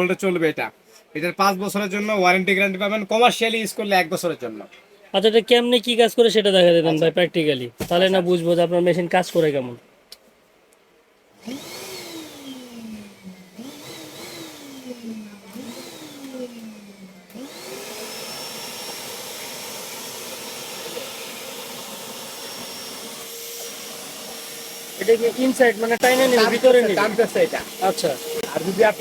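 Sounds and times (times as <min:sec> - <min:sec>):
vacuum cleaner motor whining: 0:11.4 - 0:29.0.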